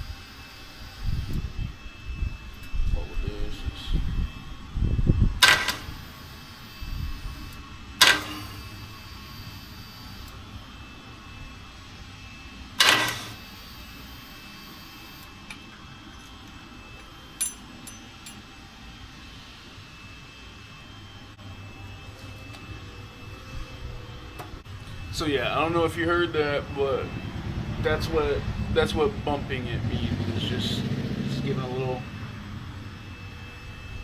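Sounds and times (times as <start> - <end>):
electric starter cranking engine: 0.0 - 1.5, 5.4 - 10.5, 12.7 - 15.4.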